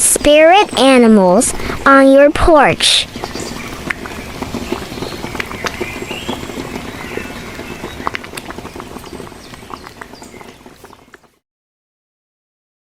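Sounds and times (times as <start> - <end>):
rustling: 3.0 - 11.4.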